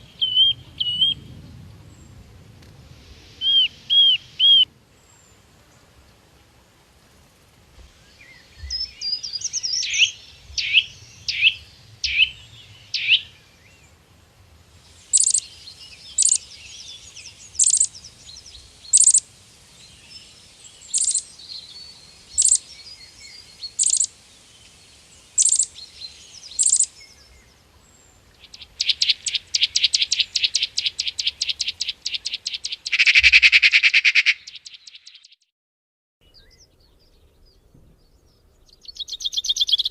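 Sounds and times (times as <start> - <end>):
bird chirps: 0.0 - 1.4, 3.4 - 5.2, 8.0 - 13.9, 15.0 - 19.2, 19.8 - 35.5, 36.2 - 39.9
small birds singing: 0.0 - 2.3, 3.3 - 5.9, 7.8 - 14.1, 14.8 - 35.4, 36.2 - 39.9
bird rattling trill: 15.1 - 15.4, 16.2 - 16.4, 17.6 - 17.9, 18.9 - 19.2, 21.0 - 21.2, 23.8 - 24.1, 26.6 - 26.9, 28.6 - 34.8.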